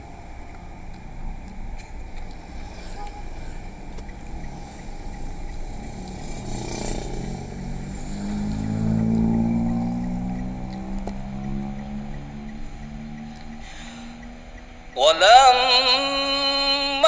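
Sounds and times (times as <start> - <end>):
sound system hum and rumble: 0.0 - 17.0
man reciting: 14.8 - 17.0.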